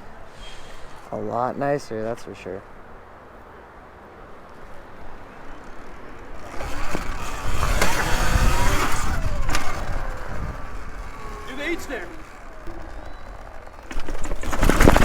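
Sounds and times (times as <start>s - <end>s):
rush of wind and tyres: 0.0s - 15.0s
electric motor whine: 5.2s - 15.0s.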